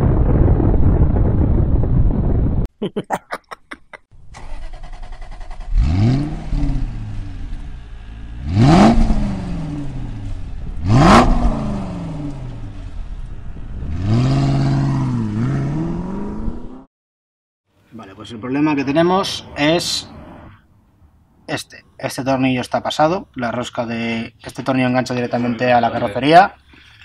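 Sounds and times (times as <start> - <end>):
car engine revving: 4.3 - 16.9.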